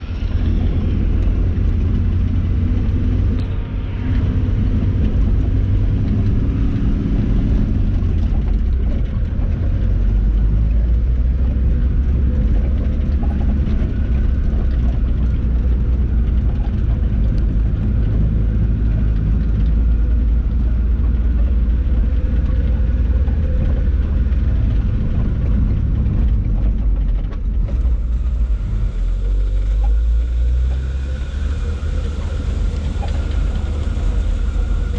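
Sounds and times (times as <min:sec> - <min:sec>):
truck engine rumbling under load: 0:00.0 - 0:34.9.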